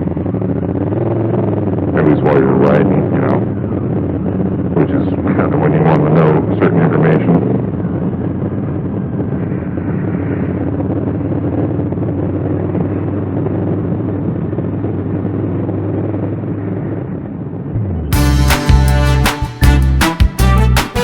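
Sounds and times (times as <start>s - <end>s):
motorcycle engine running: 0.0s - 2.1s, 3.1s - 5.3s, 7.4s - 20.7s
road noise: 0.0s - 21.0s
music: 18.1s - 21.0s.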